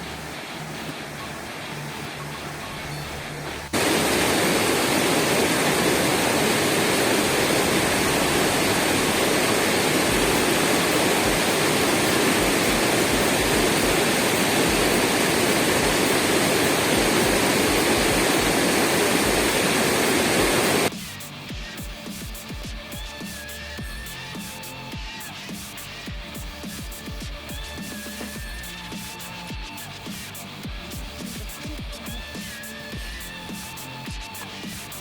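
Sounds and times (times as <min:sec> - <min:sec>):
waterfall rushing: 0:03.7 - 0:20.9.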